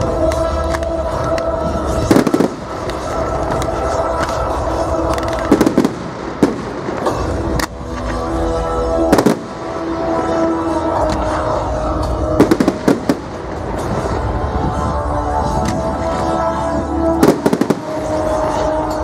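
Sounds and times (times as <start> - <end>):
music playing: 0.0 - 19.0
fireworks bangs with crackling: 1.9 - 8.2, 9.0 - 9.9, 12.3 - 14.3, 17.2 - 18.8.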